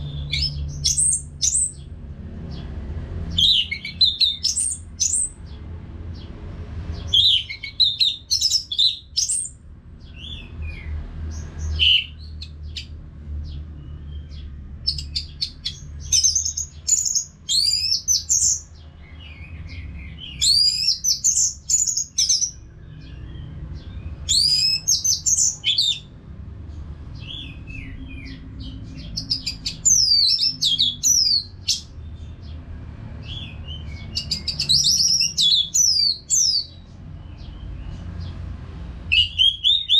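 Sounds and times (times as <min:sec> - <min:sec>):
thrush singing whistled phrases: 0:24.2 - 0:26.1, 0:39.1 - 0:39.9.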